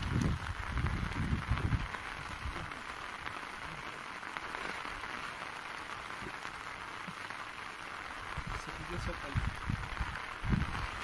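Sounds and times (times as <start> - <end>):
heavy rain on water: 0.0 - 11.0.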